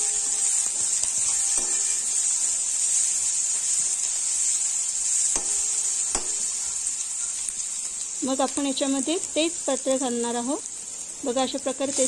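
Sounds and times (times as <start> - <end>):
metal spatula scraping a pan: 0.0 - 3.7
onions sizzling in hot oil: 0.0 - 12.0.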